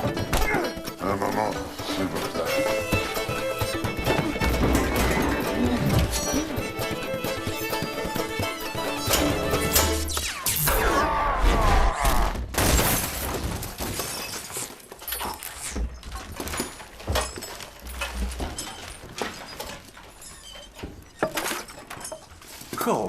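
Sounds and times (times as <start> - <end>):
debris clattering: 1.8 - 10.1, 12.6 - 22.8
shattering crash: 9.7 - 18.0.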